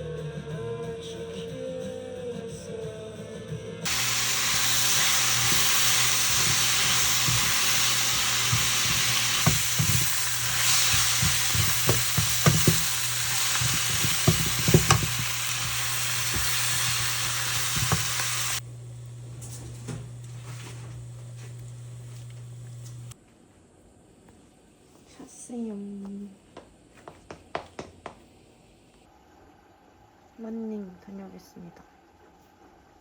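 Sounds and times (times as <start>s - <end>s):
sharp crackles and pops: 3.9s - 23.2s
skewers sizzling on a grill: 3.9s - 23.2s.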